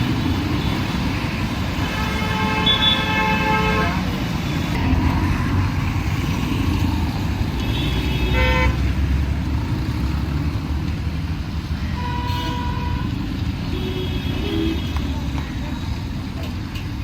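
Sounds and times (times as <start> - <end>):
road traffic rumble: 0.0 - 17.0
vehicle horns honking: 1.8 - 5.6, 7.6 - 9.0, 11.8 - 15.1.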